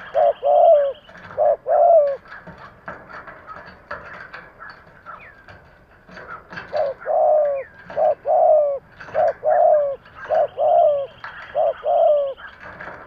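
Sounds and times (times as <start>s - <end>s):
dove cooing: 0.0s - 13.0s
faint bird chirps and clicks: 10.0s - 12.9s.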